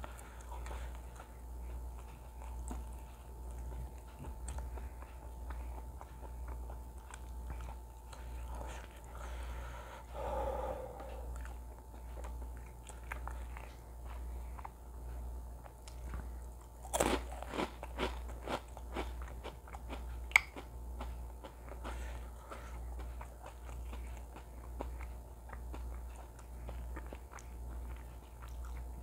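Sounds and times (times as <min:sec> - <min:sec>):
person chewing crisp food: 0:00.0 - 0:29.0
loud crunching bite: 0:16.8 - 0:19.2.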